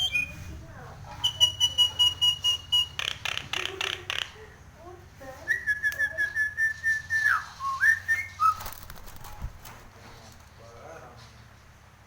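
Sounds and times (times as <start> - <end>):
bird whistling: 0.0 - 0.5, 1.1 - 3.4, 5.5 - 8.7.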